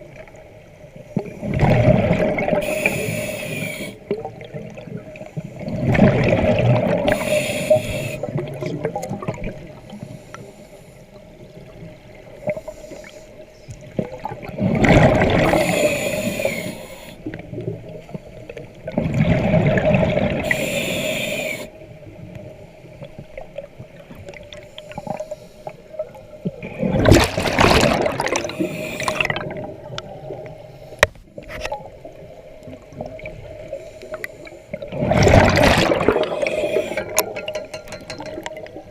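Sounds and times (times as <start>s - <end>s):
faint steady hum: 0.0s - 38.9s
gurgling exhaled bubbles: 1.2s - 9.8s, 13.9s - 16.6s, 18.8s - 20.8s, 26.0s - 30.6s, 34.7s - 38.9s.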